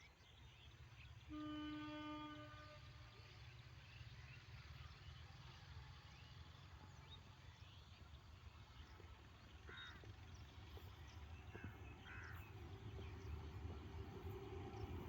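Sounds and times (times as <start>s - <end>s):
small birds chirping: 7.0s - 15.0s
crow cawing: 11.6s - 12.4s.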